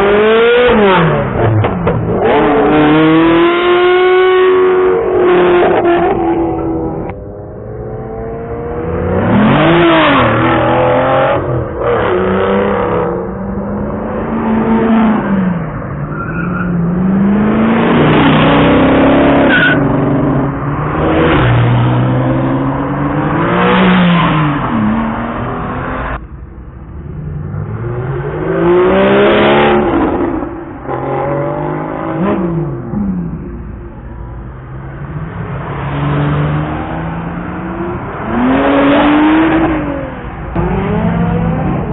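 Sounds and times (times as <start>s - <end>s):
sports car engines revving: 0.0s - 41.9s.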